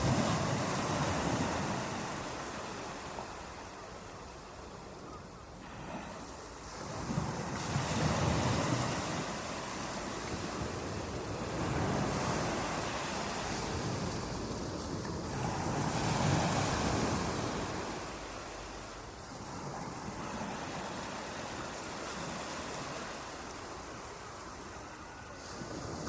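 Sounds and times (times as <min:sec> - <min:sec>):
water waves washing in: 0:05.6 - 0:26.0.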